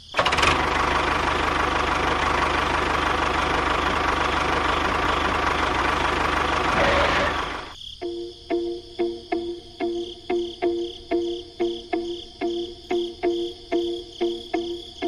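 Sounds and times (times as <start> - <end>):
small motor rattling: 0.1 - 7.8
plucked string music: 6.7 - 15.0.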